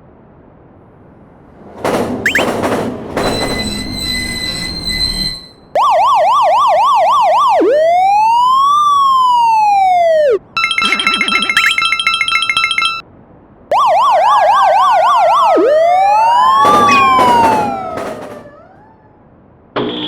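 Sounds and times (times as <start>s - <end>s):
ringing tone: 2.3s - 2.5s, 10.3s - 13.0s, 16.8s - 17.6s
repeating electronic tone pattern: 2.3s - 2.6s, 5.8s - 8.3s, 9.5s - 13.0s, 13.7s - 17.8s
police siren yelp and wail: 5.8s - 10.8s, 13.7s - 19.2s.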